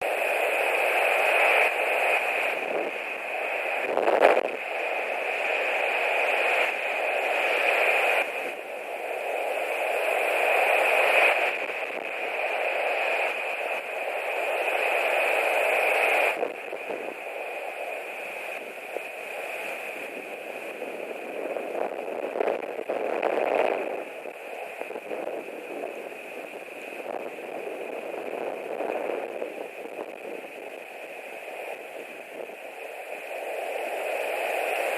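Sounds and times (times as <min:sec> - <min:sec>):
gusting wind on microphone: 0:01.2 - 0:04.6, 0:18.5 - 0:34.9.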